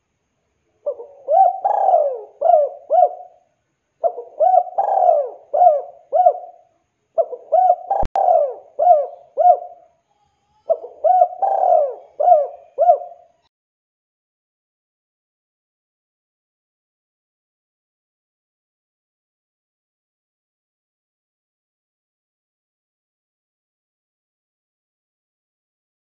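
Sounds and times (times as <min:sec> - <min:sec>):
dove cooing: 0:00.8 - 0:03.4, 0:04.0 - 0:09.9, 0:10.6 - 0:13.4.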